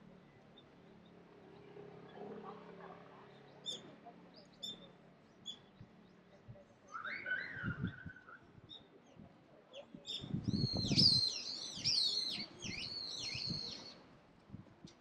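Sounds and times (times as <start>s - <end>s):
songbird singing: 3.3s - 14.0s.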